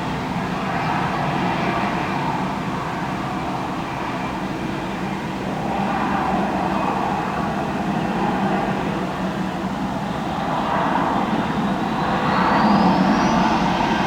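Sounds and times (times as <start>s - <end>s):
jet engines roaring: 10.4s - 14.0s.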